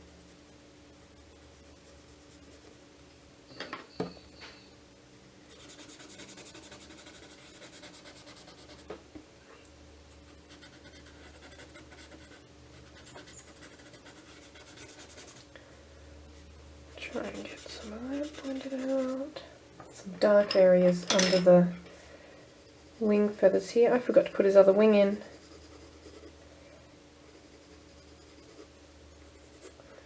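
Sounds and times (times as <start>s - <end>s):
pencil scratching on paper: 5.5s - 8.9s, 10.3s - 15.4s, 17.0s - 19.3s, 22.5s - 26.3s, 27.3s - 28.7s, 29.4s - 29.8s.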